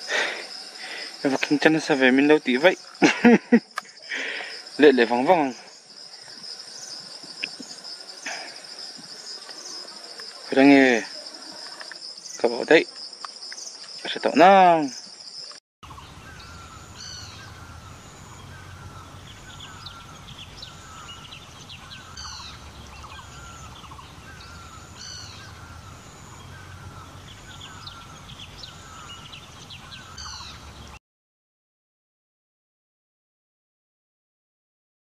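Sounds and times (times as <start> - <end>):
birds calling: 0.0 - 31.0
steady low rumble: 15.8 - 29.8.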